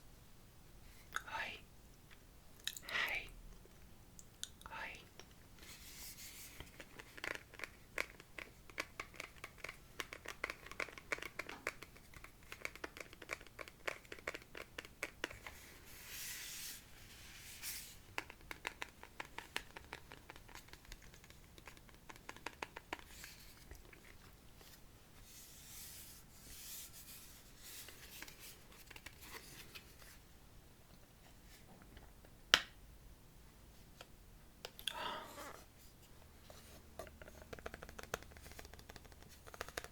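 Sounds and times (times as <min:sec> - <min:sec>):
wet mouth clicks and smacks: 0:02.6 - 0:03.0.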